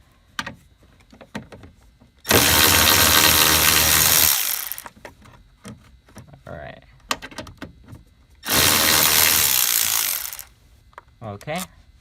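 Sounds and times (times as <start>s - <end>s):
electric ratchet motor running: 2.3s - 4.9s, 8.4s - 10.5s.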